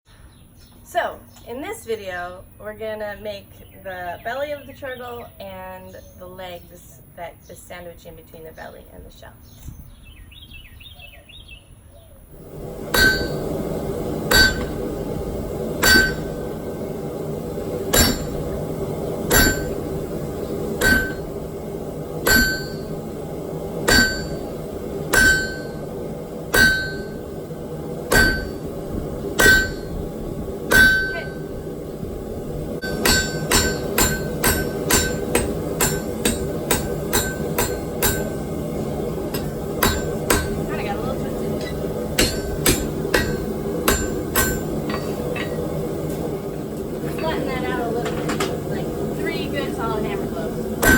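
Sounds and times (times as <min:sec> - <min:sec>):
steady background noise: 0:00.1 - 0:50.9
hammer blows on anvil: 0:12.8 - 0:15.0, 0:15.8 - 0:16.7, 0:17.8 - 0:18.6, 0:19.2 - 0:21.4, 0:22.2 - 0:23.0, 0:23.8 - 0:25.9, 0:26.5 - 0:27.2, 0:28.1 - 0:28.7, 0:29.3 - 0:30.0, 0:30.7 - 0:31.5, 0:32.8 - 0:38.6, 0:39.3 - 0:40.7, 0:41.6 - 0:45.7.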